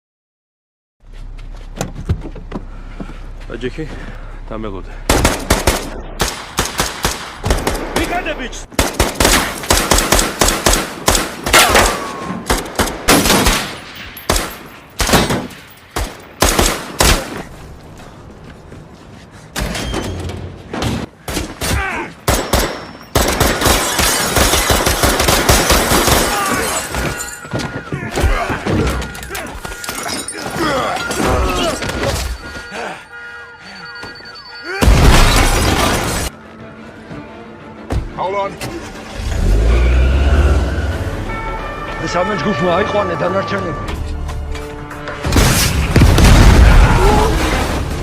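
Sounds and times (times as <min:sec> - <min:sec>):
dense battle noise: 0:05.0 - 0:17.5, 0:20.5 - 0:34.2, 0:45.2 - 0:48.0
gunshots: 0:05.1 - 0:17.5, 0:21.3 - 0:27.2.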